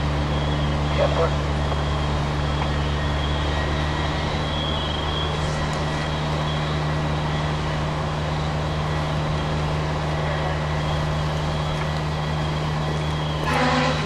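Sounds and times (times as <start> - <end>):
steady engine drone: 0.0 - 14.0.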